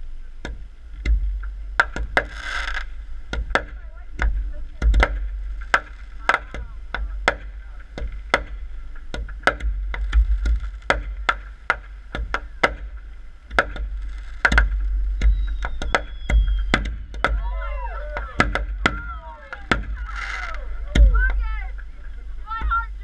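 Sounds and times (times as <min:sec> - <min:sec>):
low rumble: 0:00.0 - 0:23.0
fireworks bangs and cracks: 0:01.8 - 0:02.9, 0:03.5 - 0:08.6, 0:09.2 - 0:17.5, 0:18.2 - 0:21.5.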